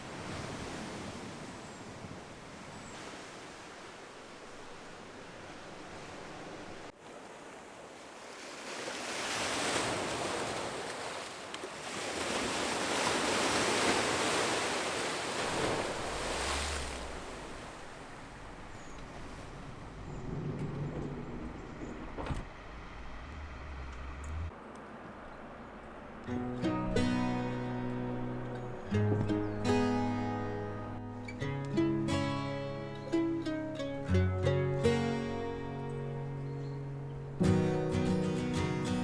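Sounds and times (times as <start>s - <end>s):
wave washing in: 7.9s - 18.4s
low steady hum: 16.9s - 28.9s.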